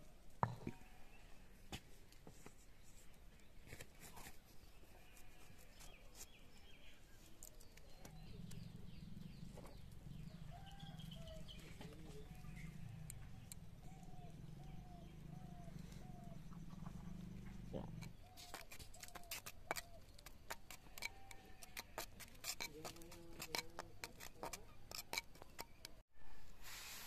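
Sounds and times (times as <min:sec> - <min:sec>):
short evenly spaced bird calls: 0:04.6 - 0:22.7
faint bird chirps: 0:04.9 - 0:20.2.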